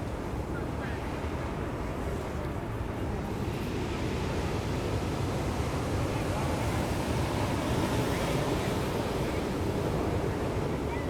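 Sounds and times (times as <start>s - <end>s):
ocean surf on a beach: 0.0s - 11.0s.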